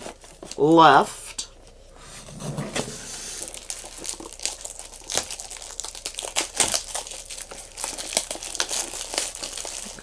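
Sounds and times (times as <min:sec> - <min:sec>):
plastic wrapping crinkling and tearing: 0:03.3 - 0:10.0.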